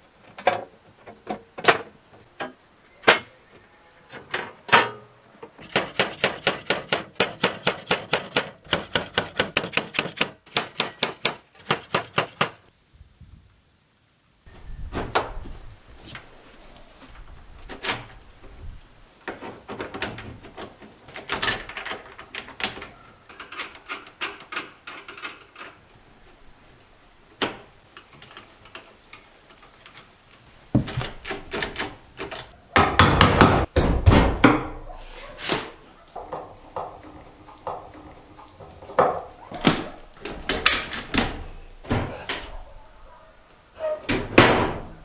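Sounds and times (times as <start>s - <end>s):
scraping and rubbing on wood: 5.5s - 12.7s, 34.6s - 44.2s
wooden knocks and taps: 30.7s - 41.3s.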